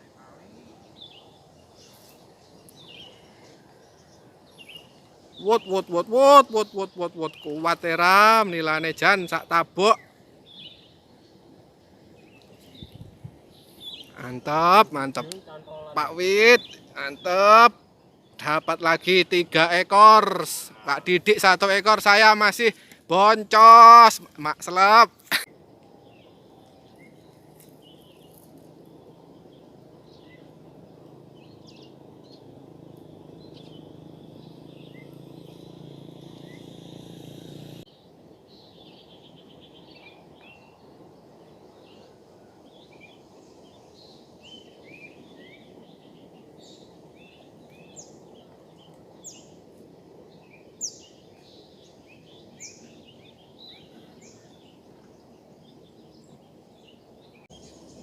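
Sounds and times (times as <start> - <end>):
outdoor background noise: 0.0 - 58.0
small birds chirping: 0.0 - 58.0
low hum: 25.7 - 38.3.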